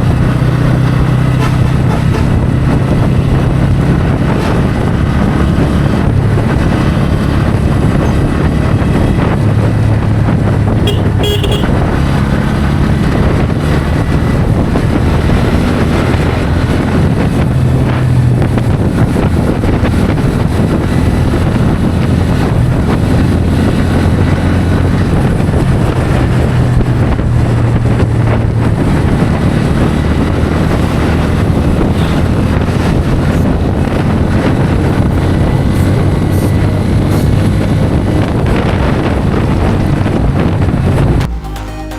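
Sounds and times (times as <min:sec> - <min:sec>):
motorcycle engine running: 0:00.0 - 0:41.3
wind on microphone: 0:00.0 - 0:41.3
vehicle horn toot: 0:10.8 - 0:11.9.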